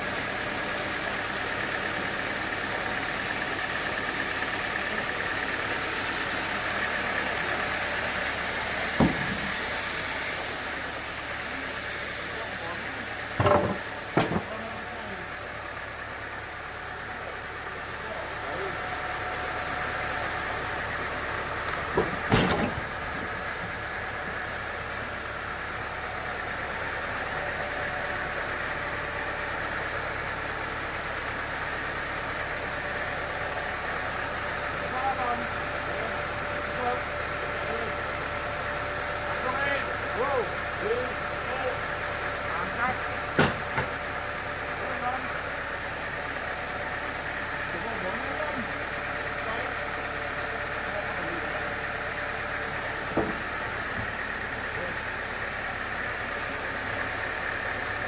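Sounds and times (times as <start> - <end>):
engine idling: 0.0 - 58.0
sawmill machinery high whine: 0.0 - 58.0
heavy thump: 9.0 - 9.5.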